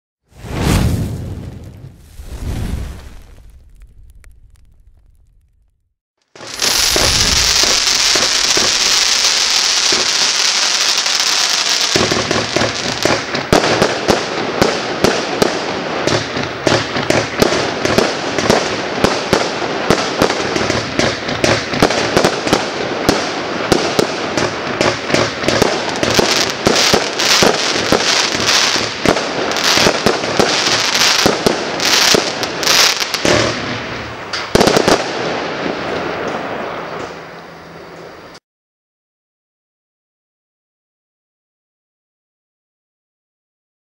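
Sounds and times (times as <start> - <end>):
firework hissing: 0.3 - 5.4, 6.4 - 13.3, 25.7 - 34.2
firework bangs: 0.3 - 5.7, 6.3 - 37.3
firework crackling and popping: 0.3 - 37.2.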